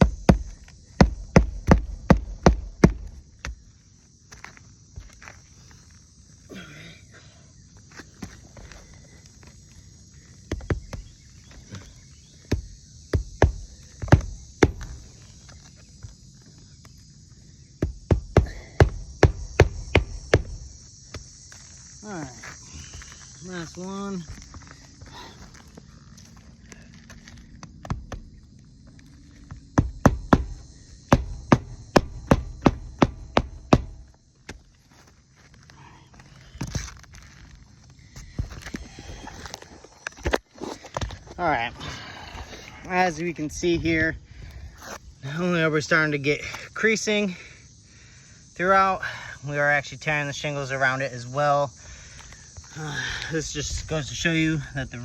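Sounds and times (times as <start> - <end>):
hand tools knocking on shingles: 0.0 - 3.7, 10.4 - 11.2, 12.4 - 15.2, 17.8 - 21.3, 29.5 - 34.7.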